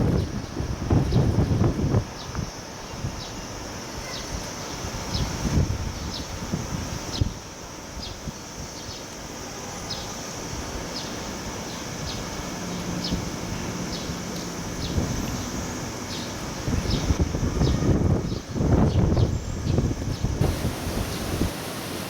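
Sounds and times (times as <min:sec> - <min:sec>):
wind buffeting microphone: 0:00.0 - 0:08.8, 0:11.9 - 0:22.0
steady high buzz: 0:11.4 - 0:22.0.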